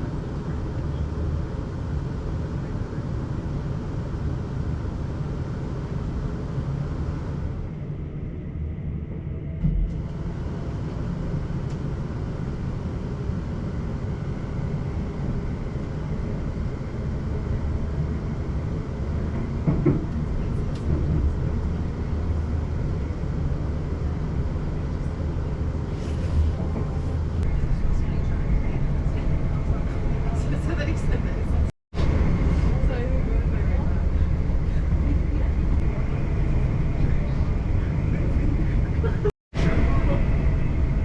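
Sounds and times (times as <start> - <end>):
train wheels rumbling on rails: 15.0 - 41.0.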